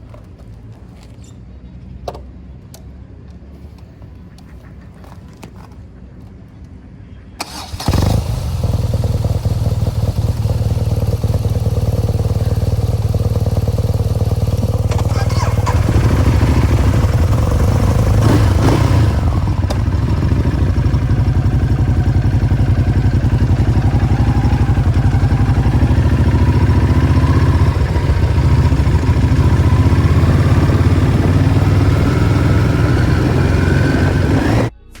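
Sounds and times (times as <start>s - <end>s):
motorcycle engine pulsing: 7.4s - 34.8s.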